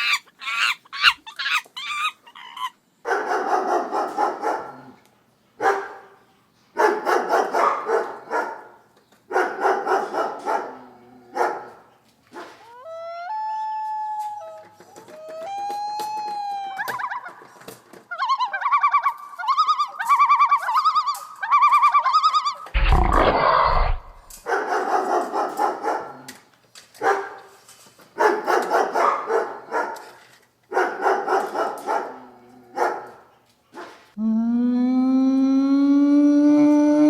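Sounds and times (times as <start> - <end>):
dog warbling calls: 0.0 - 2.8, 18.1 - 26.0
dog barking roughly: 3.1 - 4.9, 5.6 - 6.1, 6.8 - 11.8, 22.8 - 26.3, 27.0 - 27.5, 28.2 - 34.0
dog howling: 12.7 - 17.2
loud burst of noise: 22.8 - 24.4.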